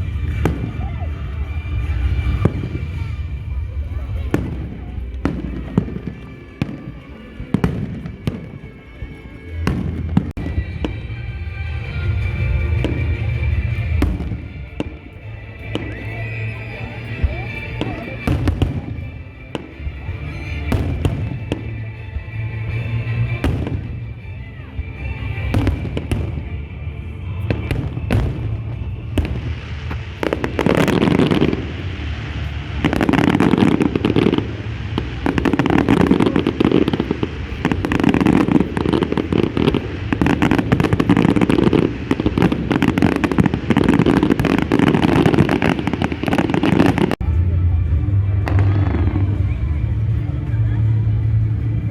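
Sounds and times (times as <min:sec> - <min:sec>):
crackling fireworks barrage: 0:00.0 - 0:51.9.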